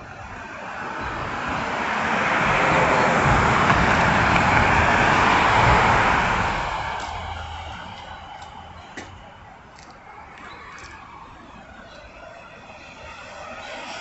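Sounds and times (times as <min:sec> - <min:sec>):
vehicle passing close by: 0:00.0 - 0:09.4.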